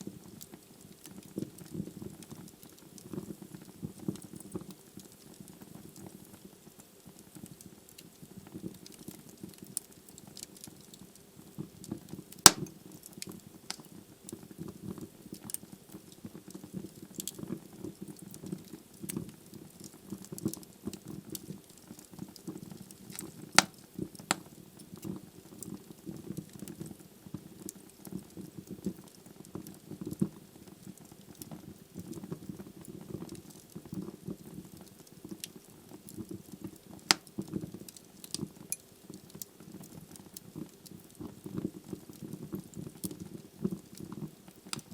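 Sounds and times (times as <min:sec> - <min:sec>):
wood fire crackling: 0:00.0 - 0:44.9
loud log pops: 0:12.5 - 0:12.7.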